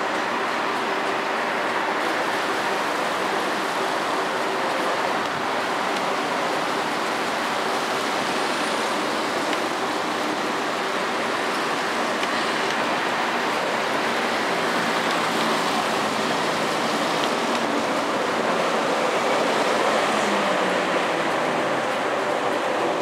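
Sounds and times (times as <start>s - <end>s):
train rushing past: 0.0s - 23.0s.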